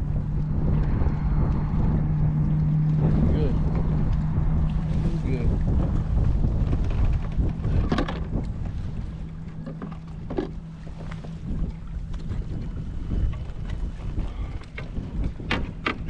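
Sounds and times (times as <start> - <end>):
steady low hum: 0.0 - 16.0
wind rumbling on microphone: 0.0 - 16.0.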